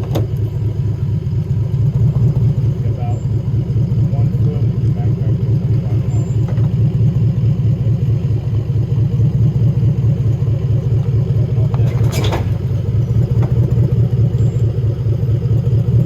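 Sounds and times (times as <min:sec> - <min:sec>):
off-road engine running low: 0:00.0 - 0:16.0.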